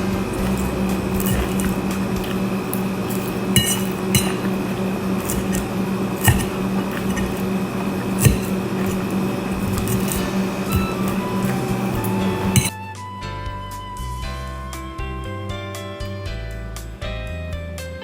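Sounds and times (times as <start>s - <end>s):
steady low hum: 0.0s - 12.7s
utensils clinking against a dish: 0.0s - 12.8s.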